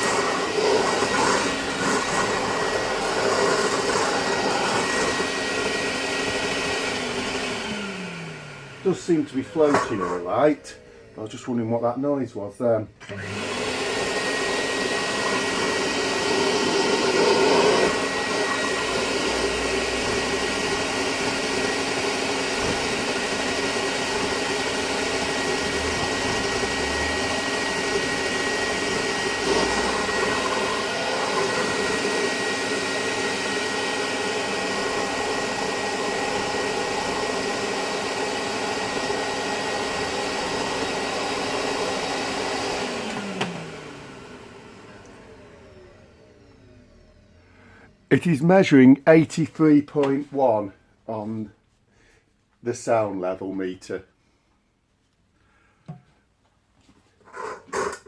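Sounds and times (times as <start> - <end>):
vacuum cleaner whining: 0.0 - 51.2, 57.2 - 58.0.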